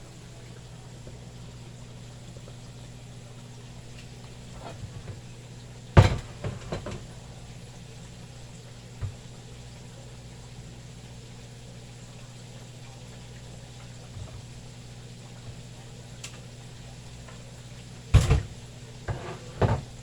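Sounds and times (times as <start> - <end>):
faint frying hiss: 0.0 - 20.0
sharp kitchen knock: 6.0 - 7.1, 18.2 - 18.5.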